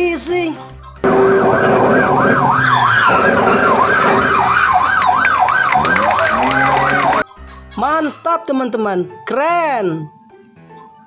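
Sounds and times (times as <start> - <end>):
toy electronic siren: 1.1 - 7.2.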